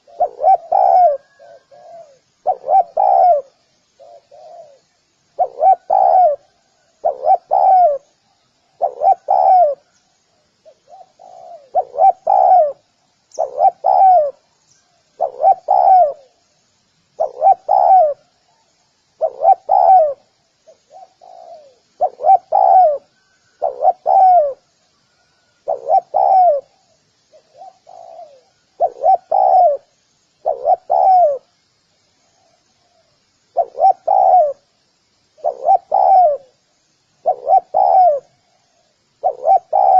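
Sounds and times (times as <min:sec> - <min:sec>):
dove cooing: 0:00.0 - 0:08.1, 0:08.8 - 0:10.0, 0:10.6 - 0:14.5, 0:15.1 - 0:16.4, 0:17.2 - 0:18.6, 0:19.2 - 0:31.5, 0:33.5 - 0:34.6, 0:35.4 - 0:36.6, 0:37.2 - 0:39.9.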